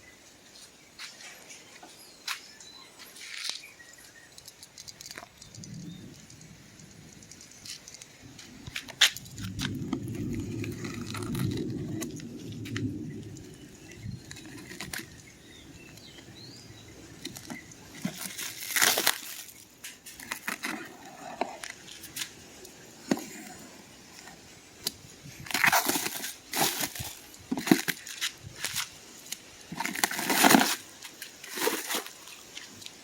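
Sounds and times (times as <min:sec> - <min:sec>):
packaging rustling and crinkling: 0:07.7 - 0:13.4, 0:17.2 - 0:22.4, 0:23.0 - 0:33.0.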